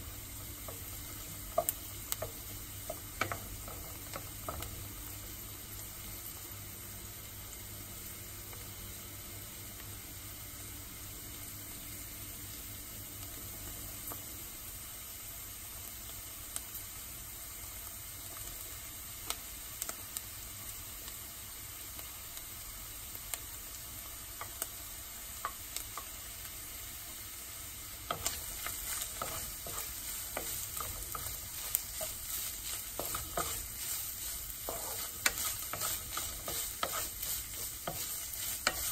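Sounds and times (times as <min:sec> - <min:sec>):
onion and garlic sizzling in oil: 0:00.0 - 0:38.9
wooden spatula scraping a wok: 0:00.6 - 0:04.8, 0:28.0 - 0:38.9.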